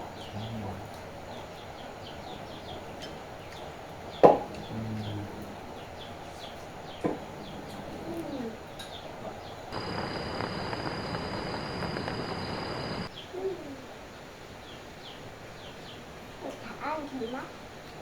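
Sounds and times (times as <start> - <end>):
small birds chirping: 0.0 - 18.0
steady hiss: 0.0 - 18.0
lower sliding bird call: 9.8 - 13.1
thin high whine: 9.8 - 13.1.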